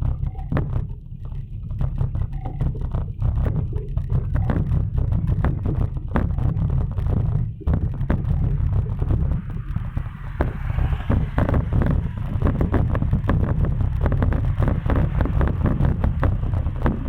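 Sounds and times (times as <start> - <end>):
bicycle rattles and knocks: 0.0 - 17.0
wind buffeting microphone: 3.6 - 17.0.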